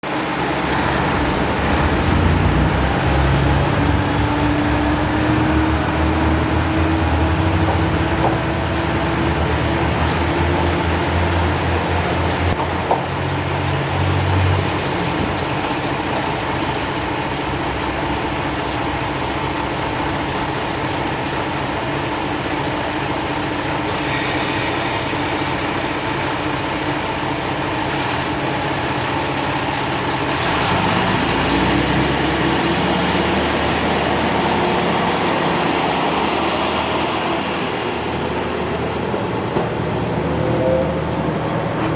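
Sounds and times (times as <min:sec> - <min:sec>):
diesel railcar engine drone: 0:00.0 - 0:41.9
train rolling rumble: 0:00.0 - 0:41.9
high hiss: 0:23.8 - 0:26.6.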